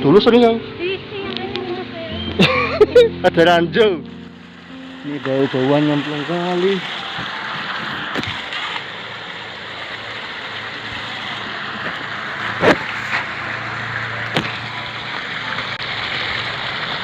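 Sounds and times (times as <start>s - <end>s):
steady rushing noise: 4.1s - 17.0s.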